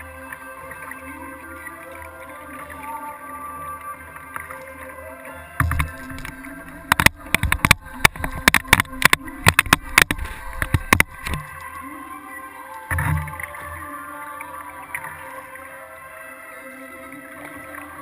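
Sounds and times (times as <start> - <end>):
sharp knocks and clicks: 5.6 - 11.5.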